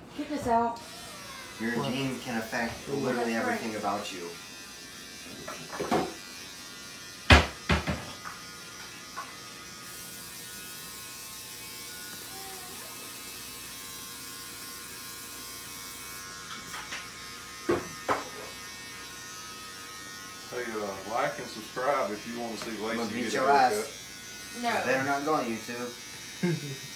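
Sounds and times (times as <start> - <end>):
electric hair clippers buzzing: 0.6 - 26.9.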